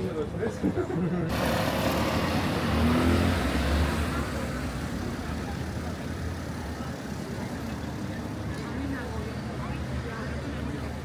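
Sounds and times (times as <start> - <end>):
street noise: 0.0 - 11.0
car engine passing: 1.3 - 5.2.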